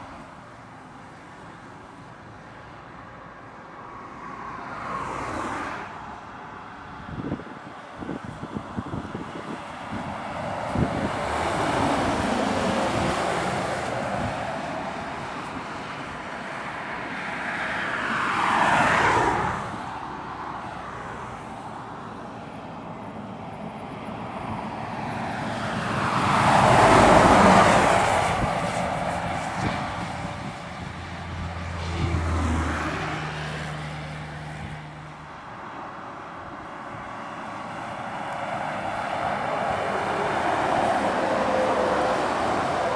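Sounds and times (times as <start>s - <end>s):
heavy trucks passing uphill: 18.8s - 42.9s.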